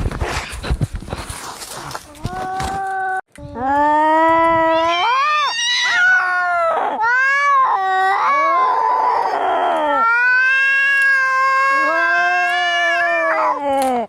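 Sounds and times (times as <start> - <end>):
cats yowling in a fight: 4.6 - 13.7.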